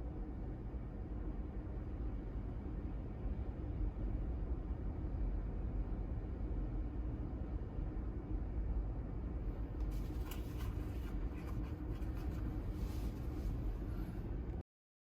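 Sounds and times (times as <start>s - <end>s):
wind: 0.0s - 14.6s
faint rustling and clicks: 9.8s - 13.7s.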